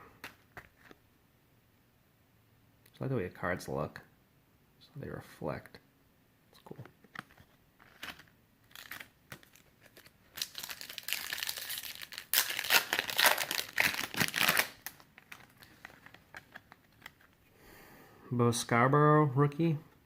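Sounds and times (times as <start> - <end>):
wrapper crinkling and tearing: 7.8 - 17.4.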